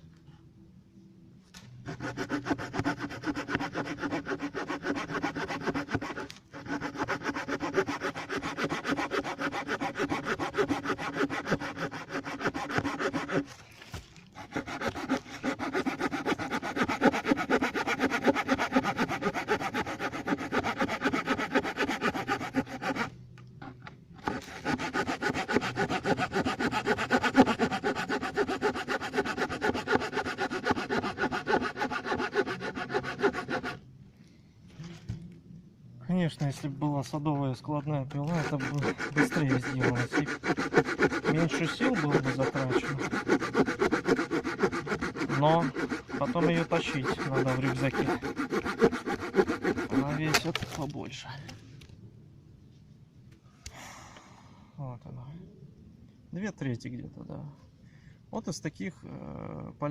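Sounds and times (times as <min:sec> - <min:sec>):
saw cutting through log: 0:01.9 - 0:13.6, 0:14.4 - 0:23.2, 0:24.2 - 0:33.8, 0:38.2 - 0:50.9.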